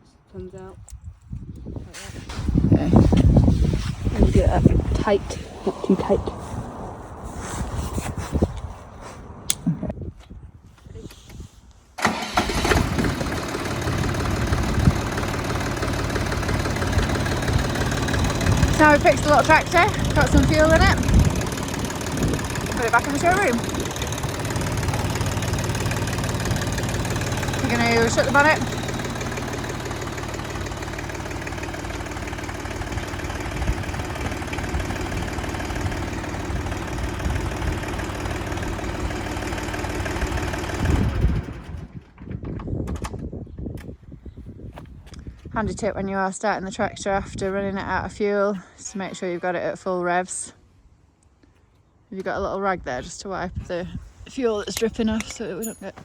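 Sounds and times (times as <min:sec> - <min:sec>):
tractor diesel engine idling: 0:12.0 - 0:42.0.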